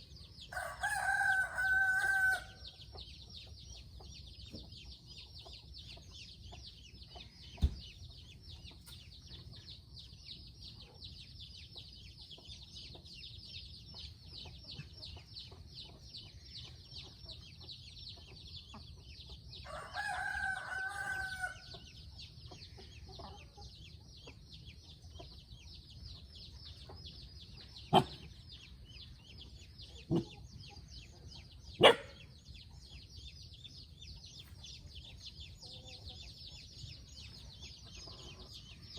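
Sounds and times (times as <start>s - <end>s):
rooster crowing: 0.5s - 2.6s, 19.7s - 21.7s.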